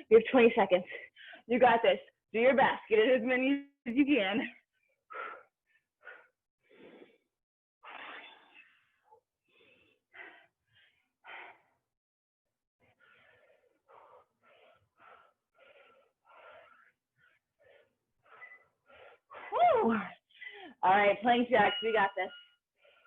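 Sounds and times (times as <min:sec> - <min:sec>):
person breathing hard and fast: 0:04.7 - 0:12.0, 0:12.8 - 0:20.8, 0:22.7 - 0:23.0.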